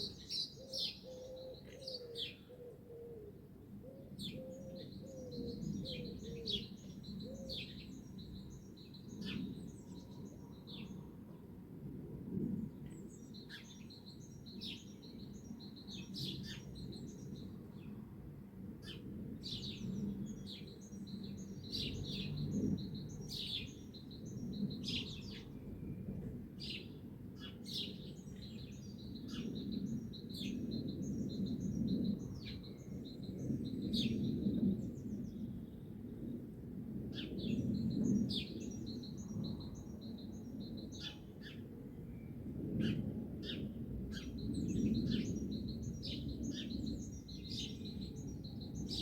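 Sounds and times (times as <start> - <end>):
songbirds chirping and singing: 0.0 - 2.8, 4.0 - 11.1, 18.9 - 25.6, 26.6 - 35.5, 37.2 - 41.7, 42.8 - 49.0.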